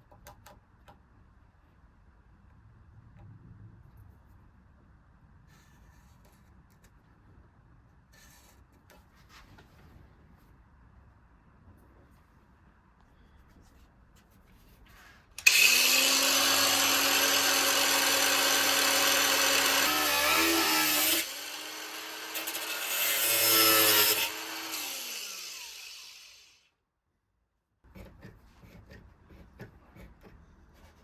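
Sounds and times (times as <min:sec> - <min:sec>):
angle grinder grinding steel: 0:15.4 - 0:26.6.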